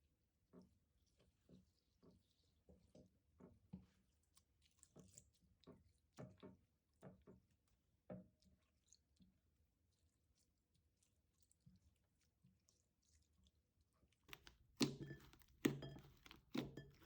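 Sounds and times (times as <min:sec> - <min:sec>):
slime squelching and popping: 0:14.3 - 0:17.0.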